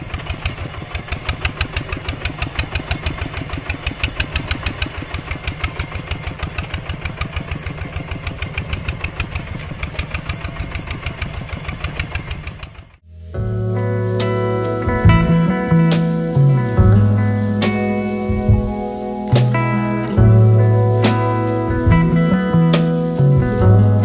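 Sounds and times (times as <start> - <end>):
small engine chugging: 0.0 - 13.0.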